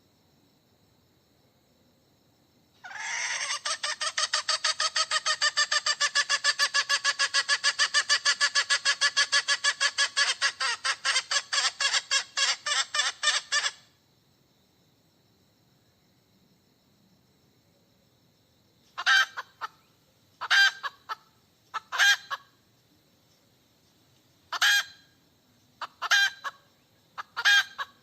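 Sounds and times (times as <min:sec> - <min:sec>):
hen clucking: 0:02.8 - 0:13.8, 0:19.0 - 0:19.8, 0:20.4 - 0:22.4, 0:24.5 - 0:25.0, 0:25.8 - 0:26.6, 0:27.2 - 0:28.0.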